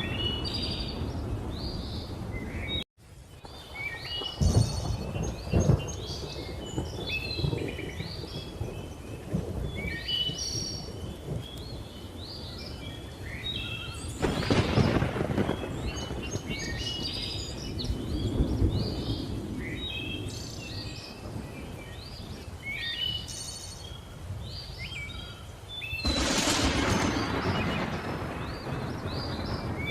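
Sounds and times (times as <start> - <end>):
distant thunder rumbling: 3.4 - 22.4, 26.0 - 29.9
loud thunderclap: 4.2 - 11.5, 14.2 - 19.9, 26.0 - 29.9.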